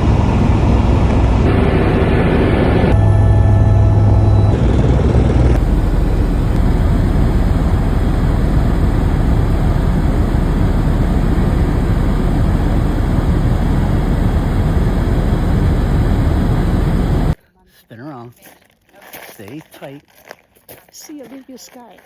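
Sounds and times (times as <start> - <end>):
helicopter cabin rush and rumble: 0.0 - 17.4.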